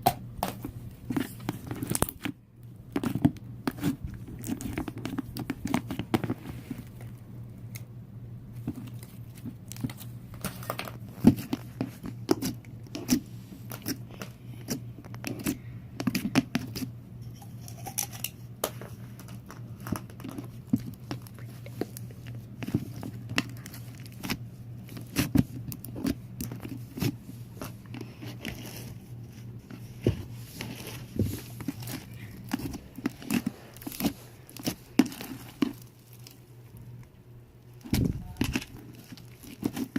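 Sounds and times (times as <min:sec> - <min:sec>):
low steady hum: 0:00.0 - 0:39.9
slime squelching and popping: 0:30.0 - 0:39.9.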